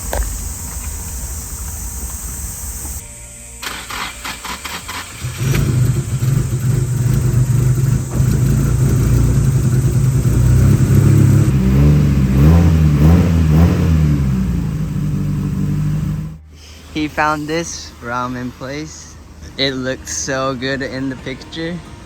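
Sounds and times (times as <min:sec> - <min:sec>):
car engine idling: 0:00.0 - 0:03.0, 0:03.6 - 0:22.0
engine revving: 0:00.0 - 0:03.0, 0:03.6 - 0:16.4.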